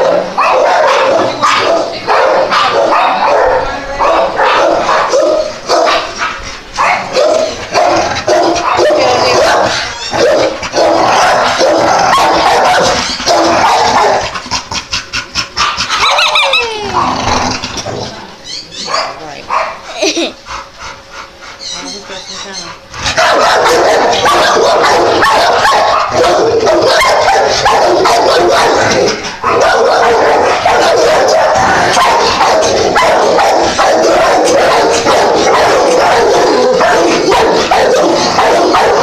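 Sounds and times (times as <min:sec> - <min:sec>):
dogs barking: 0:00.0 - 0:39.0
dog whining: 0:08.6 - 0:10.6, 0:15.9 - 0:20.3, 0:21.3 - 0:39.0.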